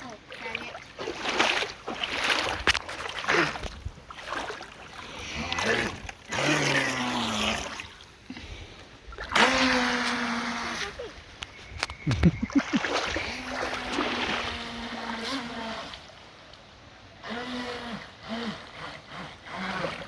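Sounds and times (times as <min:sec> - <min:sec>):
water rushing and splashing: 0:00.0 - 0:20.0
model boat motor whining: 0:05.2 - 0:08.1, 0:09.4 - 0:11.5, 0:13.4 - 0:16.1, 0:17.2 - 0:20.0.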